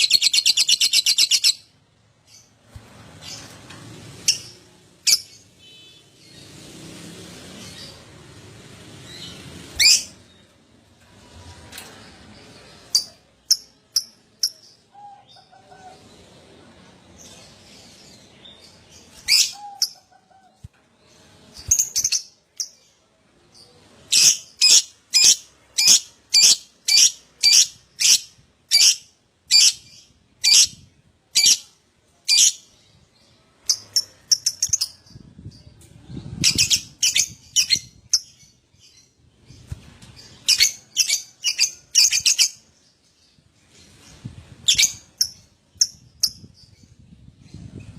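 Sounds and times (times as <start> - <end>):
lovebird chirping: 0.0 - 1.7, 36.4 - 42.7.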